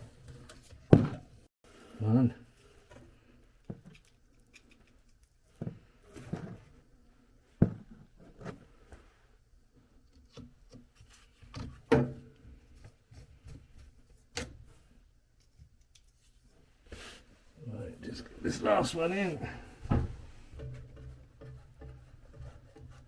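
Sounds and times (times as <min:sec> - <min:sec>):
knocks and clicks of hand work: 0:19.8 - 0:23.0.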